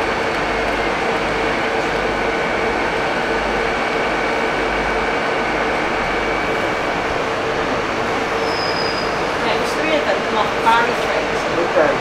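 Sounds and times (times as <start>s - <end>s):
train rumble and hum: 0.0s - 12.0s
whining tones: 0.4s - 9.6s.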